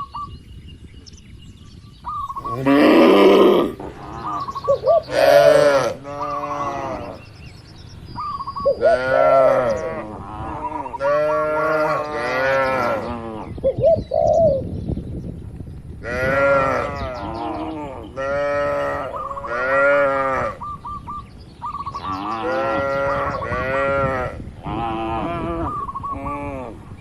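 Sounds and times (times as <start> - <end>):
cattle mooing: 2.4 - 7.2.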